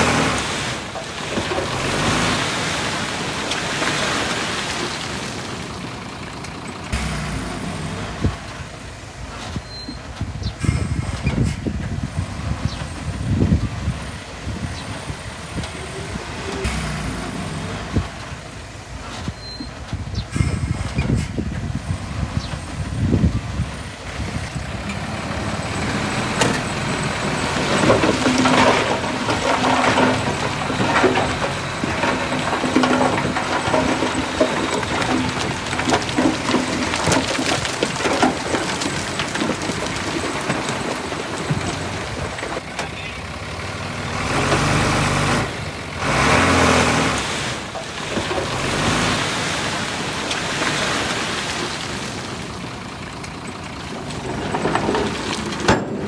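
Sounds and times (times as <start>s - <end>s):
heavy diesel machinery running: 6.3s - 33.8s, 41.5s - 50.6s
continuous clattering: 7.0s - 24.5s.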